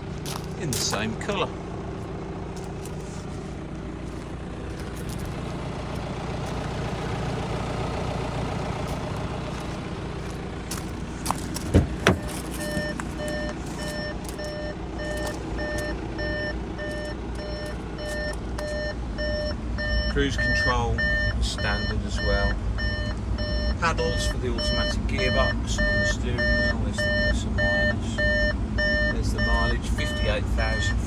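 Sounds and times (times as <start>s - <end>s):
diesel engine idling: 0.0s - 31.0s
car warning beep: 6.6s - 31.0s
quick thumps: 10.8s - 13.9s.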